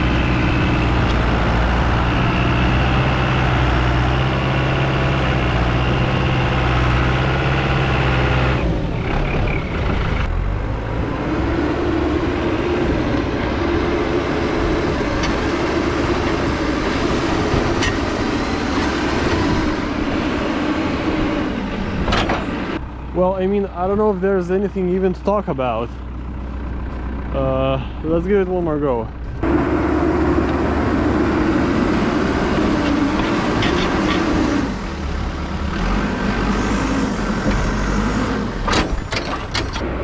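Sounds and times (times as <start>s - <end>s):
loader diesel engine working hard: 0.0s - 40.0s.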